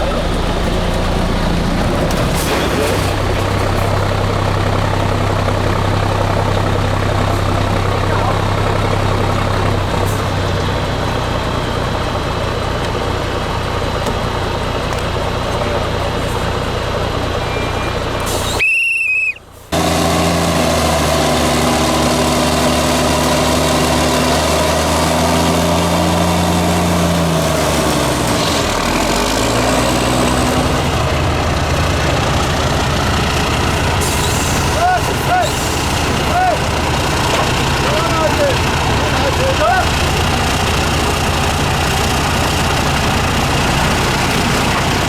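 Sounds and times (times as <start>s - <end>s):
truck diesel engine under load: 0.0s - 45.0s.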